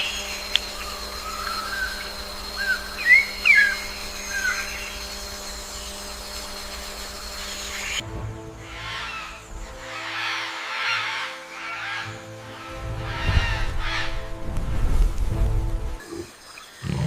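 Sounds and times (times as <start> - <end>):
whistled bird calls: 0.0 - 5.1, 8.7 - 14.4
steady droning hum: 0.0 - 16.0.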